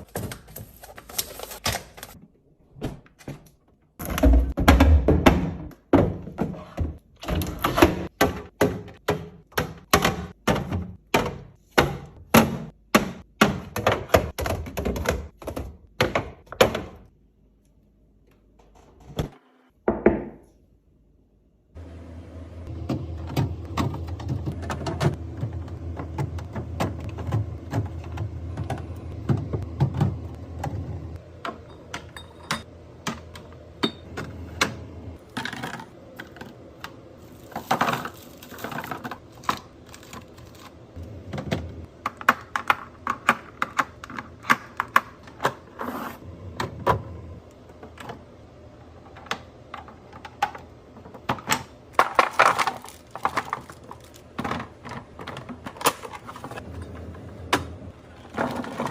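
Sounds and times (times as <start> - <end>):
food containers clacking: 22.8 - 45.8, 49.0 - 58.9.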